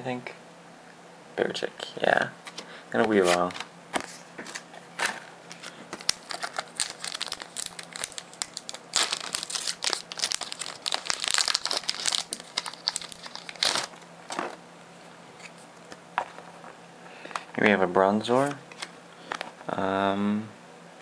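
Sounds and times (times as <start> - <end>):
foil wrapper crinkling: 5.1 - 14.0.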